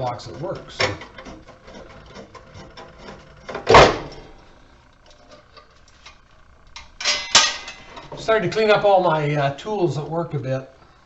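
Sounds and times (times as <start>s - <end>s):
loud knock: 3.6s - 4.1s
tools and metal parts clicking: 6.8s - 8.2s.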